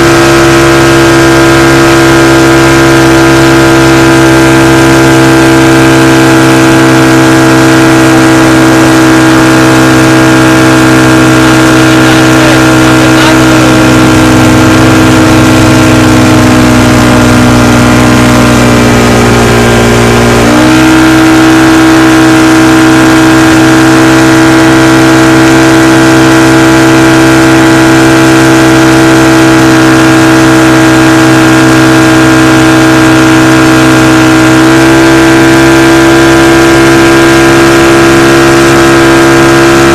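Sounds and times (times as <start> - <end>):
motorboat engine running: 0.0 - 39.9.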